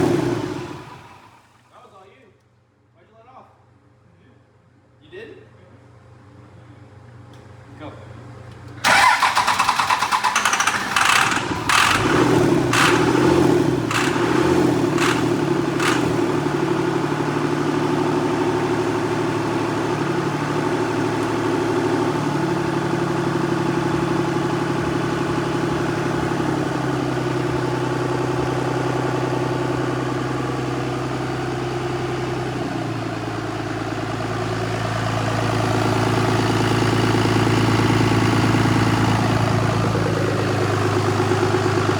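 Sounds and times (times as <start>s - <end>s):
engine firing cracks: 8.8s - 16.2s
diesel engine idling: 8.8s - 41.9s.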